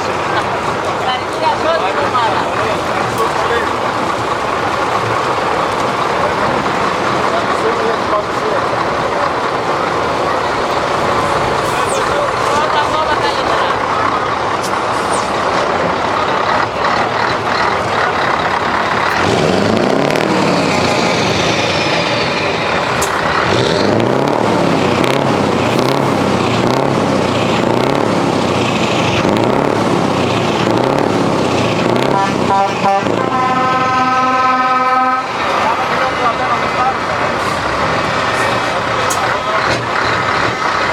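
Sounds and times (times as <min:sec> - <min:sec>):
heavy truck engines revving: 0:00.0 - 0:40.9
truck horn: 0:31.9 - 0:35.6.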